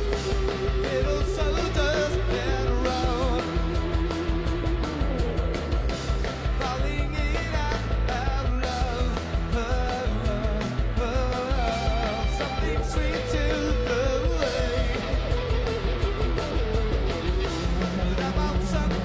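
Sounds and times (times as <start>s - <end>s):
distorted electric guitars: 0.0s - 19.0s
drum beat: 0.0s - 19.0s
rock band playing: 0.0s - 19.0s
man singing lead vocal: 0.5s - 4.2s, 6.5s - 15.6s, 17.4s - 19.0s.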